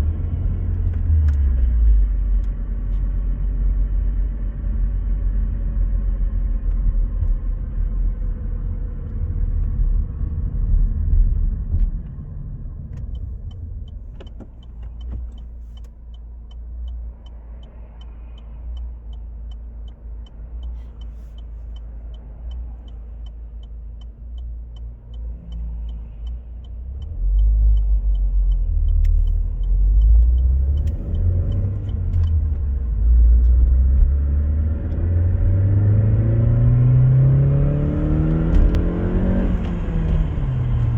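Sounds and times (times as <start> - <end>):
low drivetrain rumble: 0.0 - 40.9
regular ticking: 12.9 - 33.7.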